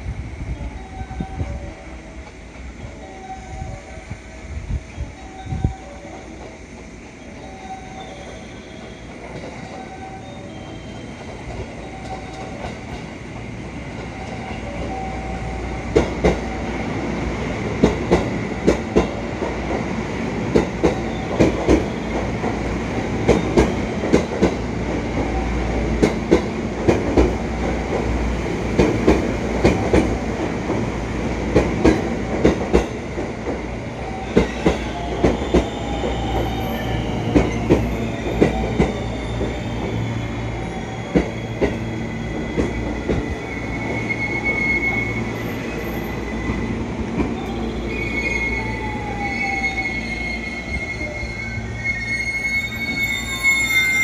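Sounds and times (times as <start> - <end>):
train rumbling: 0.0 - 54.0
wheels clacking over rail joints: 17.4 - 43.4.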